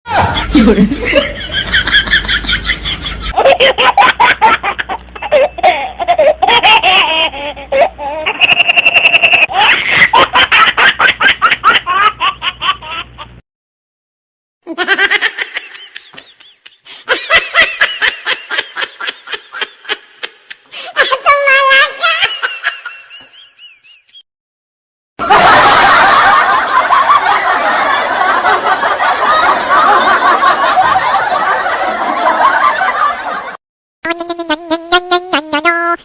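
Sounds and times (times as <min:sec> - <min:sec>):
people laughing: 0:00.1 - 0:05.4, 0:14.7 - 0:20.6, 0:22.0 - 0:23.7, 0:25.2 - 0:33.6.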